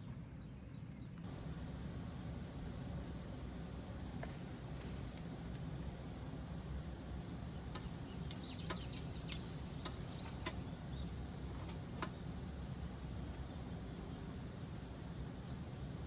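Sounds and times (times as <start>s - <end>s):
wood fire crackling: 0.8s - 16.0s
high wavering chirping: 7.8s - 11.7s.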